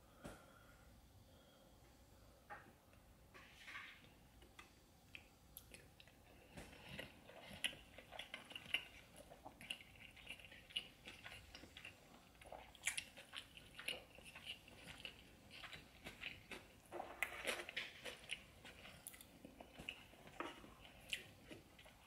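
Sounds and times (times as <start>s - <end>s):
wet chewing and lip smacking: 5.1s - 22.0s.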